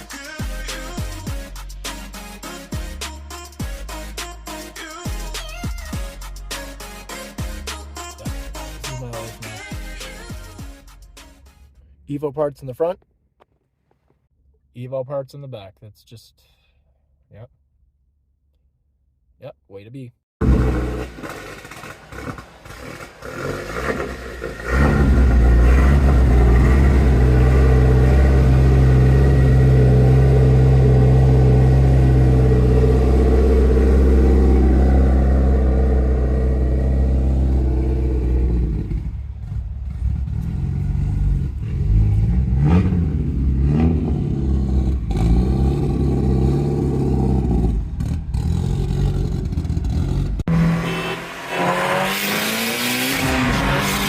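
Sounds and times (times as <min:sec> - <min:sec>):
car engine revving: 0:20.4 - 0:54.0.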